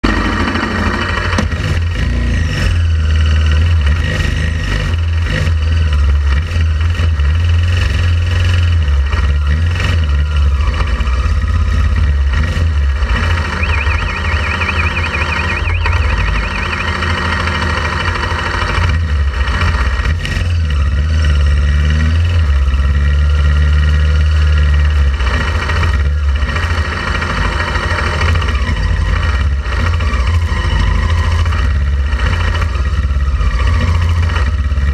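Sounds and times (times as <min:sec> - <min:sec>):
motorcycle engine: 0:00.0 - 0:34.9
warbling high tone: 0:13.0 - 0:17.9.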